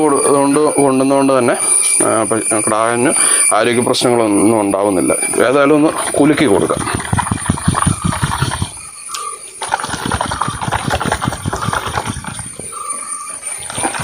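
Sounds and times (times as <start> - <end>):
liquid sloshing in shaken bottle: 5.3 - 9.0, 9.6 - 14.0.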